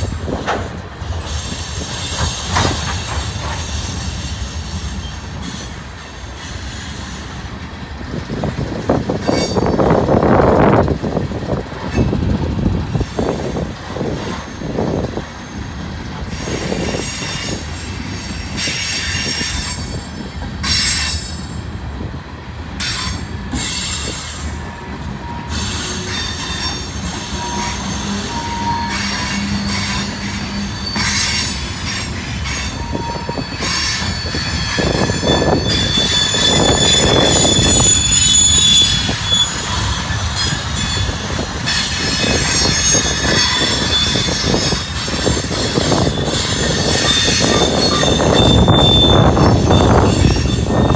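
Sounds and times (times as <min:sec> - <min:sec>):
train wheels clattering on rails: 0:00.0 - 0:50.9
high-pitched wheel squeal: 0:08.8 - 0:10.4, 0:22.8 - 0:50.9.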